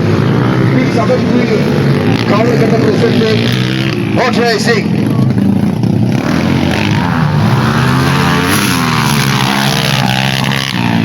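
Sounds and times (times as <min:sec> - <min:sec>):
motorcycle engine revving: 0:00.0 - 0:11.0
motorcycle engines droning: 0:00.0 - 0:11.0.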